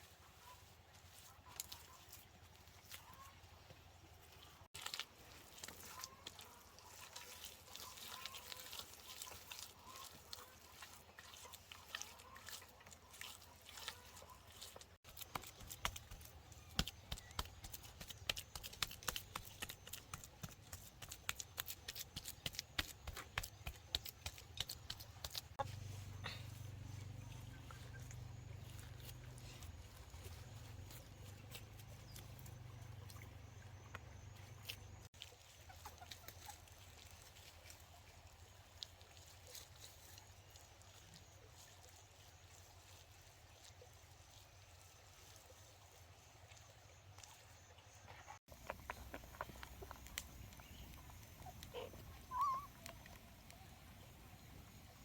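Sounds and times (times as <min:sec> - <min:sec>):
high-pitched animal call: 0:51.4 - 0:52.9.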